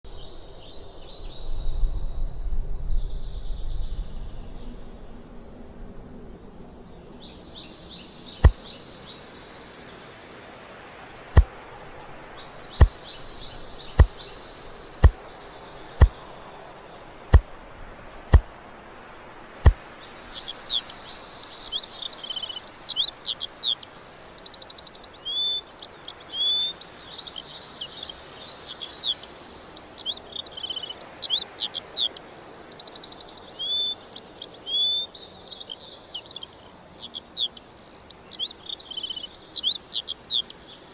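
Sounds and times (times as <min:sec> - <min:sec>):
songbirds chirping and singing: 0:00.0 - 0:40.9.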